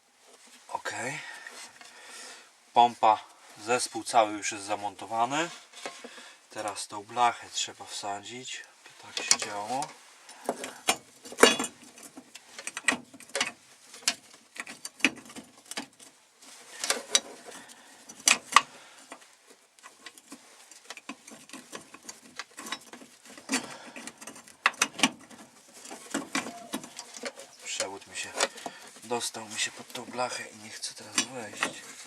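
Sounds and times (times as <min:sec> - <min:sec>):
metal parts clicking and knocking: 0:10.4 - 0:16.1, 0:19.8 - 0:30.2.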